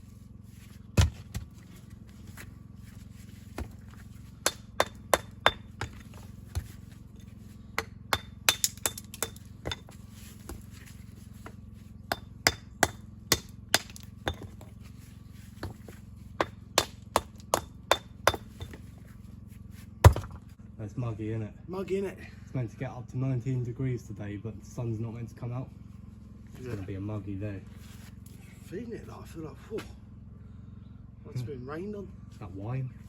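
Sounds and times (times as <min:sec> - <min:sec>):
steady low hum: 0:00.0 - 0:33.0
hammer striking stone: 0:04.4 - 0:06.7, 0:07.8 - 0:09.9, 0:12.1 - 0:14.7, 0:15.6 - 0:18.8, 0:20.0 - 0:20.4.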